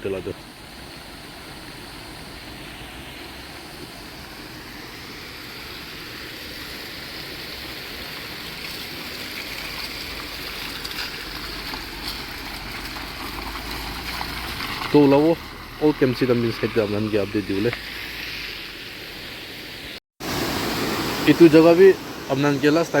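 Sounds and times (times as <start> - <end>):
tyres hissing through water: 0.0 - 23.0
car on wet road: 1.3 - 19.2.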